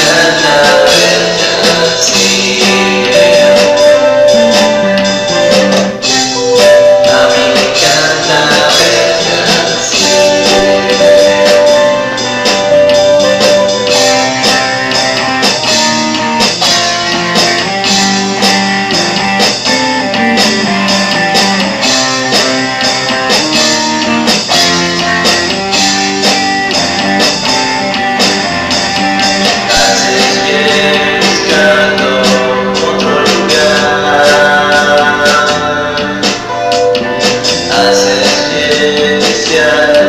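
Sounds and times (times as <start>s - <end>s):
psychedelic rock band playing: 0.0s - 40.0s
gliding melodic line: 2.4s - 16.5s, 17.8s - 23.1s.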